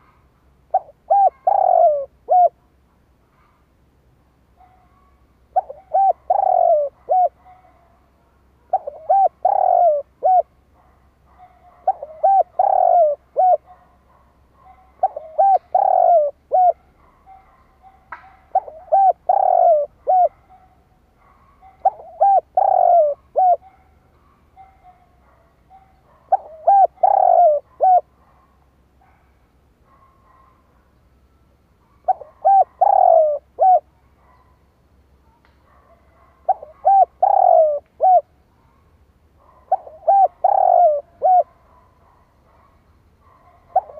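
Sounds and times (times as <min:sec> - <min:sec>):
dove cooing: 0:00.0 - 0:02.7, 0:04.6 - 0:08.0, 0:08.6 - 0:10.6, 0:11.3 - 0:23.9, 0:24.6 - 0:28.4, 0:31.8 - 0:34.5, 0:36.0 - 0:38.4, 0:39.4 - 0:43.9.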